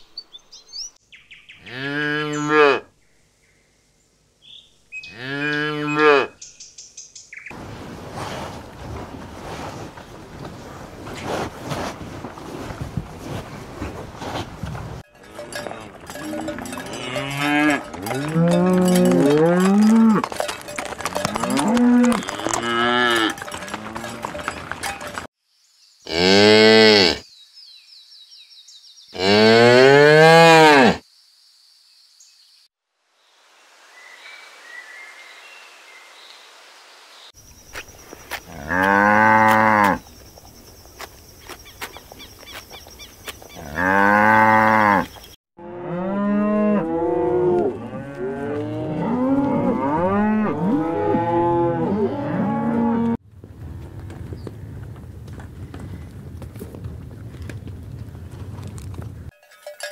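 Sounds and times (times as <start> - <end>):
cows mooing: 1.6 - 2.8, 5.1 - 6.3, 15.1 - 25.2, 26.1 - 27.2, 29.2 - 31.0, 38.5 - 40.0, 43.6 - 53.2.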